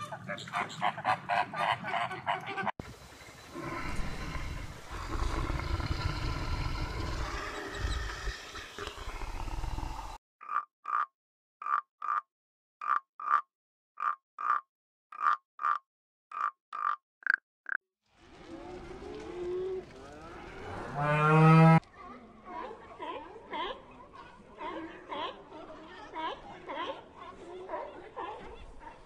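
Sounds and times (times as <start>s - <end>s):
bear growling: 3.5s - 10.2s
frog croaking: 3.5s - 17.8s.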